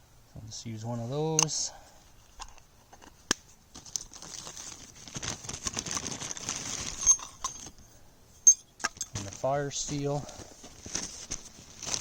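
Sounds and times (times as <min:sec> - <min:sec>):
bag rustling and crinkling: 0:03.7 - 0:07.8, 0:08.9 - 0:12.0.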